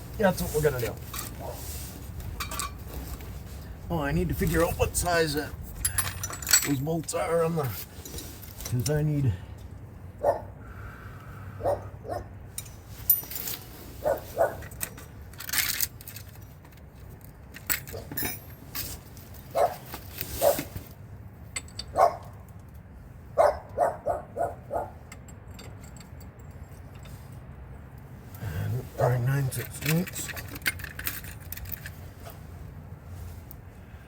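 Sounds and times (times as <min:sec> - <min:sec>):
metal hand tools clinking: 0:05.7 - 0:09.1, 0:17.6 - 0:19.1, 0:29.0 - 0:32.0.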